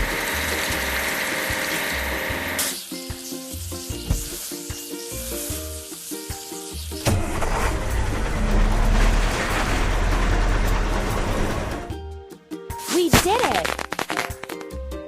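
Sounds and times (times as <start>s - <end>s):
bouncy background music: 0.0s - 15.0s
cartoon water spray hiss: 0.2s - 7.1s, 12.7s - 14.7s.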